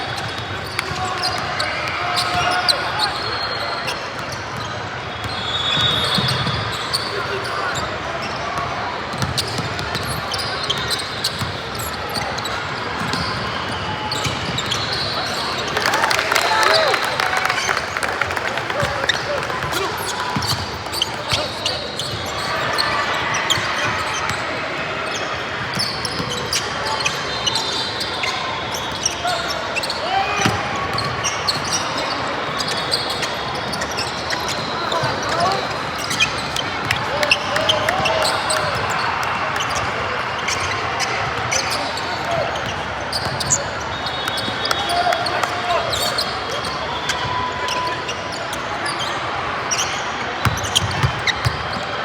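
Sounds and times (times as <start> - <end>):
shoe squeaks: 0.1 - 8.4, 9.2 - 15.8, 18.8 - 24.3, 25.0 - 38.8, 39.7 - 52.0
crowd murmur: 15.3 - 25.8
basketball bouncing on gym floor: 50.4 - 51.6.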